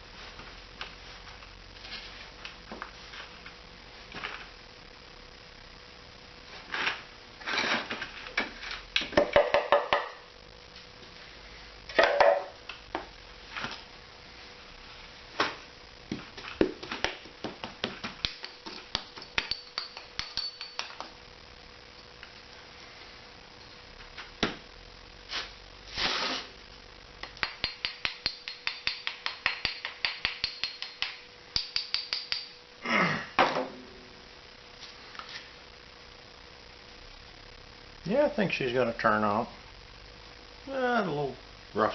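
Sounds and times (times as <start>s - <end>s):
rapid hammer taps on metal: 27.2s - 32.6s.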